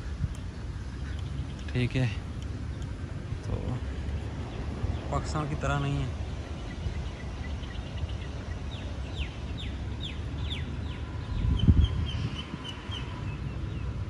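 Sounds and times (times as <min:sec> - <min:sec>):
bird chatter: 0:00.0 - 0:14.0
birds whistling: 0:04.4 - 0:14.0.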